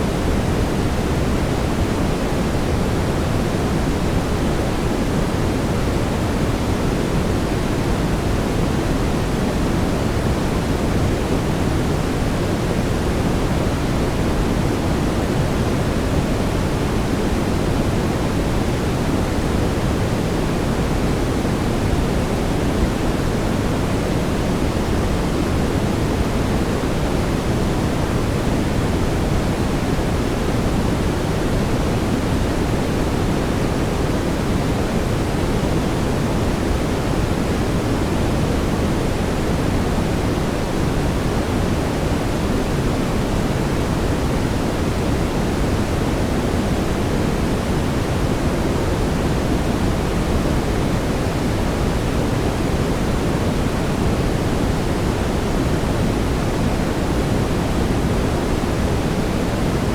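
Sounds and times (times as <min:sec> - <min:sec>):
brown noise hiss: 0:00.0 - 0:59.9.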